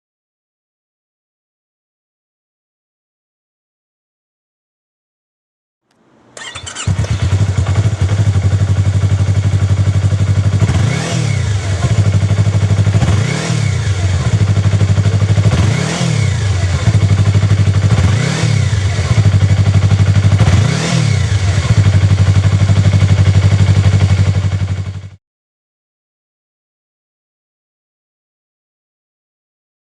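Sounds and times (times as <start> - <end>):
motorcycle engine revving: 6.4 - 25.2.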